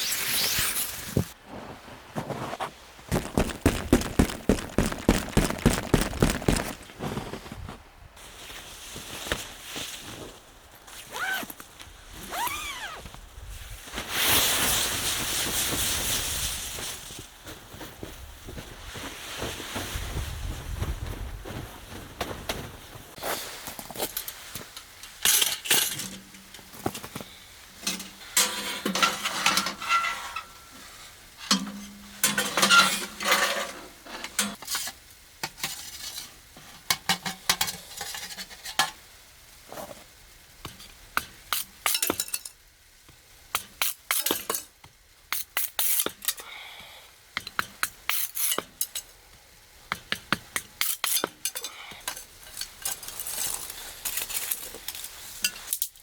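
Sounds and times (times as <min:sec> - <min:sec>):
rustling: 0:00.1 - 0:31.2
pots and cutlery clinking: 0:24.1 - 0:26.7, 0:27.8 - 0:30.6, 0:31.4 - 0:39.0, 0:41.5 - 0:42.6, 0:43.6 - 0:44.7, 0:49.9 - 0:56.0.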